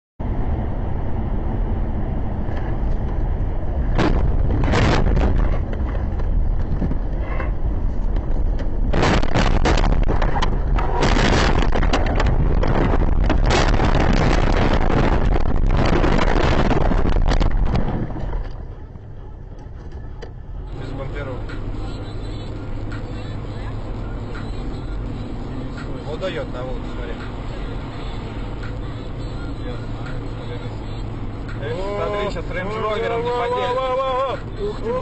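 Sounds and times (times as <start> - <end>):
vehicle low rumble: 0.2 - 35.0
crackles and knocks: 3.9 - 18.7.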